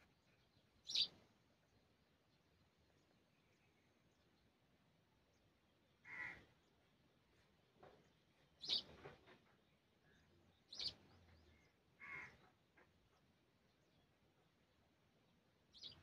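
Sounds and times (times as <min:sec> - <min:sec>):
bird calls: 0:00.0 - 0:01.3, 0:07.8 - 0:14.1, 0:15.7 - 0:16.0
faint bird chirps: 0:00.0 - 0:04.4, 0:08.6 - 0:13.2, 0:15.7 - 0:16.0.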